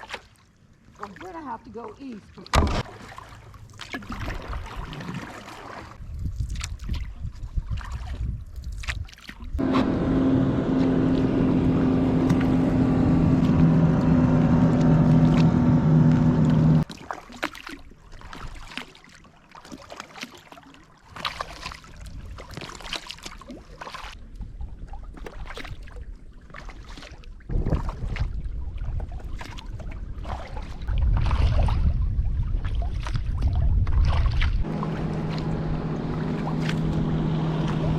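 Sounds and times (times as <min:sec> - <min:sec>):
paddle splashes and drips: 0:00.0 - 0:09.8, 0:16.1 - 0:37.9
wind rumble on microphone: 0:06.0 - 0:09.7, 0:27.4 - 0:37.9
boat engine humming: 0:09.6 - 0:16.8, 0:34.6 - 0:37.9.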